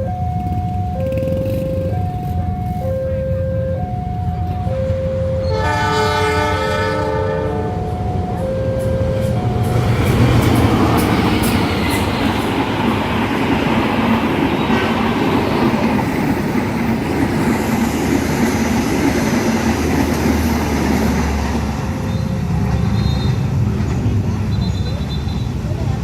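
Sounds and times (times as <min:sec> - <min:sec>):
wheels clicking over rail joints: 0:00.1 - 0:02.8
train horn blast: 0:04.8 - 0:07.8
train wheels rushing on rail: 0:07.7 - 0:26.0.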